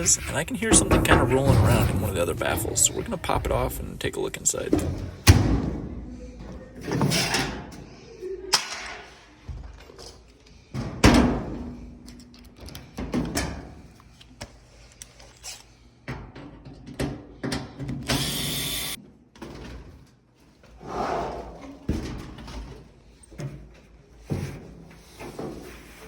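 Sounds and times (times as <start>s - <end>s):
dryer drum baffle knocking: 0.0s - 5.5s.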